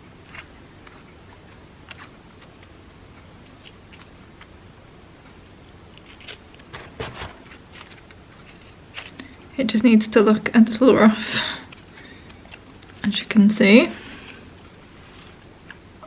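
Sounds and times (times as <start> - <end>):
paper tearing: 6.2 - 8.7.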